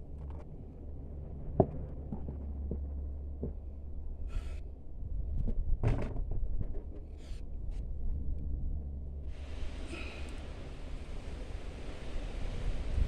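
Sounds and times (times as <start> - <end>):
wind rumble on microphone: 0.0 - 13.0
windy hiss: 9.2 - 13.0.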